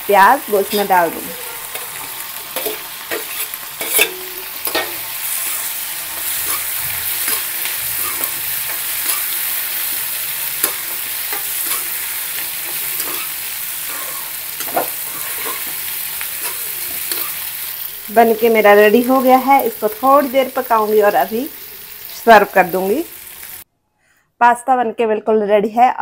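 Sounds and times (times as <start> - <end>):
food sizzling in hot oil: 0.0 - 23.7
spatula scraping pan: 0.7 - 17.8.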